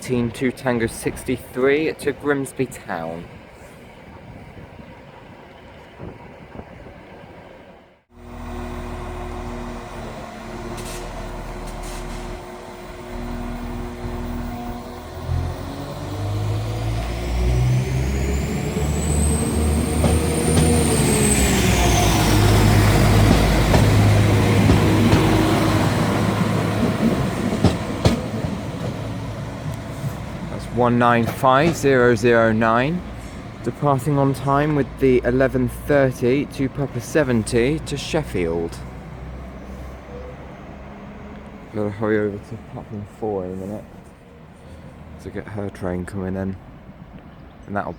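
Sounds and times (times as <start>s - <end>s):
diesel train engines revving: 0.0s - 47.4s
high whine: 8.1s - 28.5s.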